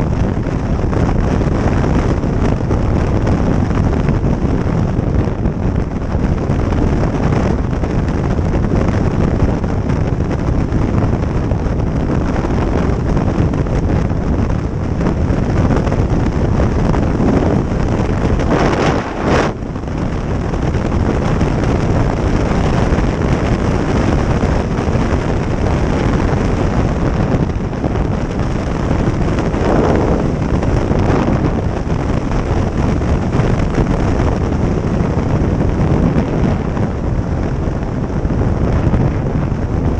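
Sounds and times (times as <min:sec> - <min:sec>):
motorcycle engine and road noise: 0:00.0 - 0:39.9
wind rushing over microphone: 0:00.0 - 0:39.9.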